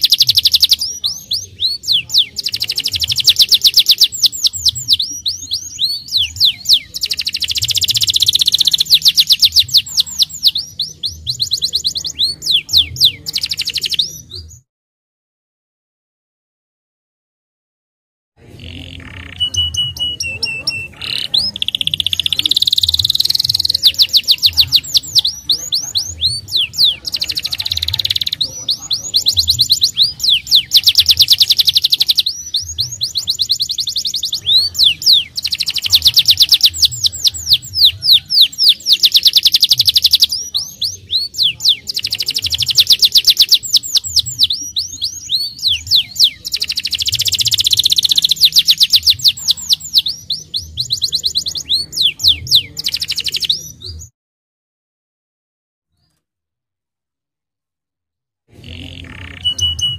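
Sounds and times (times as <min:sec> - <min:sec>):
canary singing trills: 0:00.0 - 0:14.6, 0:18.5 - 0:54.1, 0:58.5 - 0:59.9.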